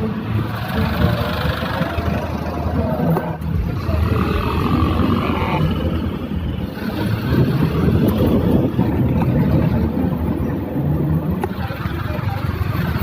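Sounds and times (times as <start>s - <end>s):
wind buffeting microphone: 0.8s - 13.0s.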